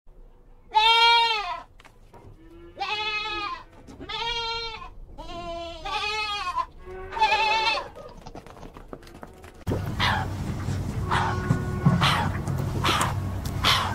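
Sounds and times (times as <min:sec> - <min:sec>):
goat bleating: 0:00.7 - 0:01.7, 0:02.4 - 0:08.0.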